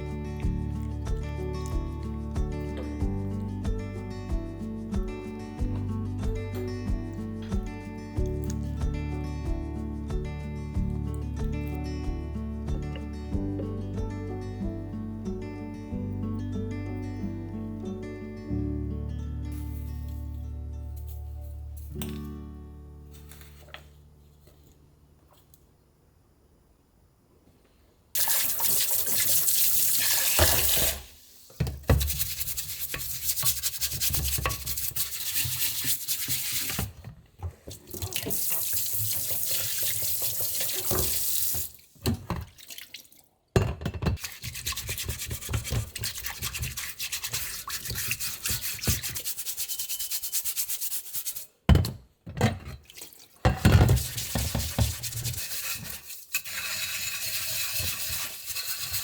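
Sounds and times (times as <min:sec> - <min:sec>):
water running from a tap: 0:28.2 - 0:31.3, 0:37.9 - 0:41.9, 0:44.2 - 0:49.4
scrubbing dishes: 0:31.7 - 0:43.1, 0:43.8 - 0:51.4, 0:52.4 - 0:59.0.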